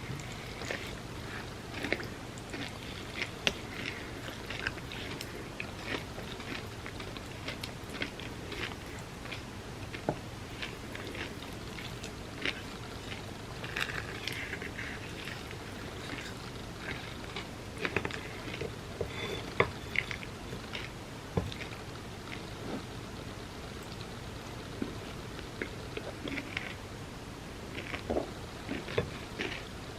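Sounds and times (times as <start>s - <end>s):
wet chewing and squelching: 0.0s - 22.9s.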